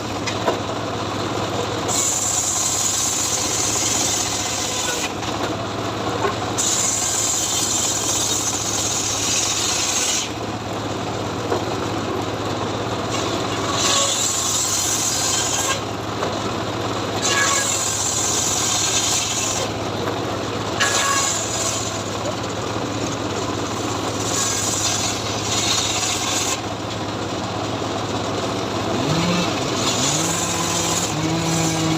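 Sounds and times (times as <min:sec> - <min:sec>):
saw engine humming: 0:00.0 - 0:31.9
saw blade cutting wood: 0:01.9 - 0:05.5, 0:06.2 - 0:10.4, 0:13.1 - 0:16.3, 0:17.1 - 0:20.2, 0:20.8 - 0:26.8, 0:28.9 - 0:31.9.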